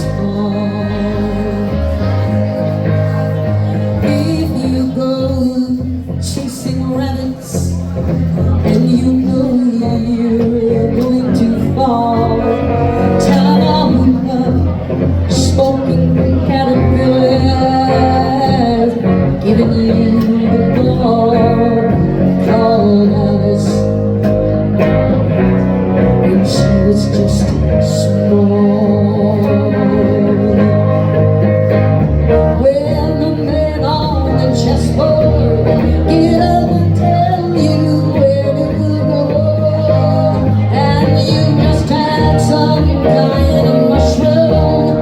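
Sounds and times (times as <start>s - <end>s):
woman singing: 0.0s - 2.8s, 3.6s - 24.5s, 26.2s - 31.4s, 32.3s - 45.0s
bass guitar: 0.0s - 45.0s
guitar: 0.0s - 45.0s.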